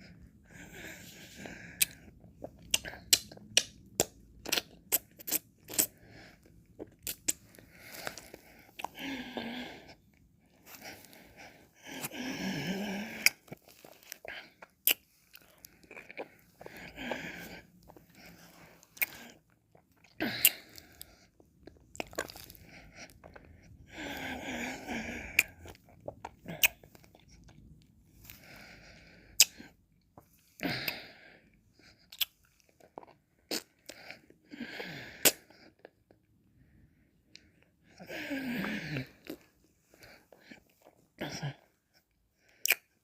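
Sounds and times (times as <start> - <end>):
wet mouth clicks: 1.8 - 6.0, 6.8 - 7.5, 14.8 - 16.3, 29.4 - 29.6, 32.1 - 32.4, 42.6 - 42.9.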